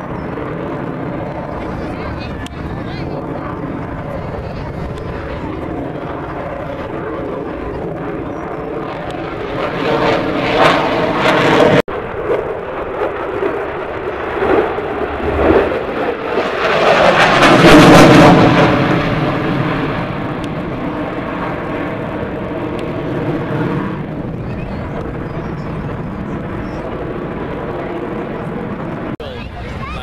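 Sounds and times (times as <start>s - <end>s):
airplane engines flying past: 0.0s - 30.0s.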